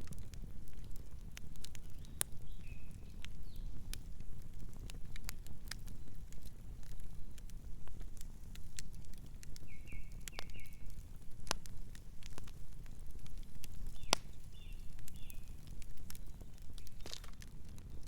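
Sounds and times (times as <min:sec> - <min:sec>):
campfire crackling and popping: 0:00.0 - 0:18.0
soft night bird chirps: 0:01.9 - 0:03.8, 0:09.6 - 0:11.0, 0:13.8 - 0:17.3.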